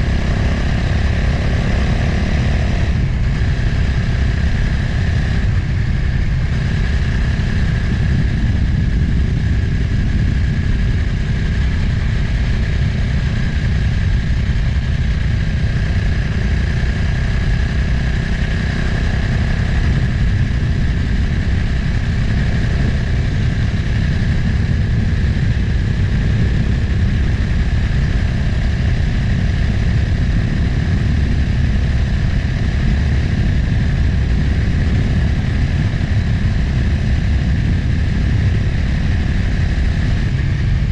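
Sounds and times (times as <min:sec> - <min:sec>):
motorcycle engine running: 0:00.0 - 0:40.9
wind rushing on microphone: 0:00.0 - 0:40.9.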